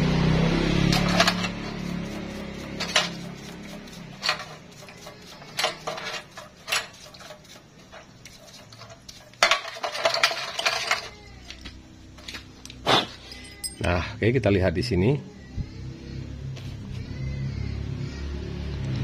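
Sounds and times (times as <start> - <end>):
steel tools clinking on bearing: 0.9 - 14.2.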